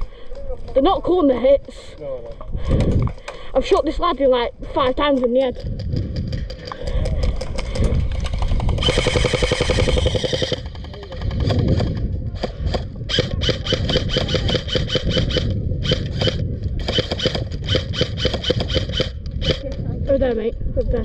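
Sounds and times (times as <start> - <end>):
airsoft rifle firing: 8.3 - 12.0, 12.6 - 19.6.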